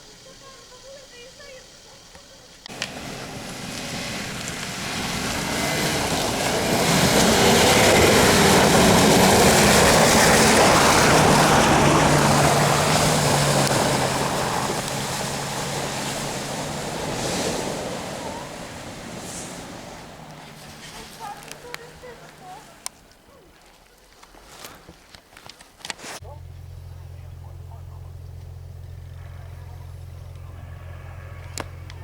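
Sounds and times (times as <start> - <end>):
vehicle engine under load: 2.6 - 23.3, 26.2 - 32.0
splashing through mud and water: 2.7 - 26.6.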